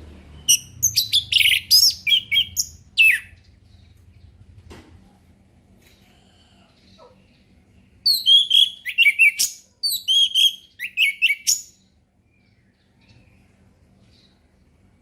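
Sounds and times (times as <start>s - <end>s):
thrush singing whistled notes: 0.4s - 3.3s, 8.1s - 11.8s.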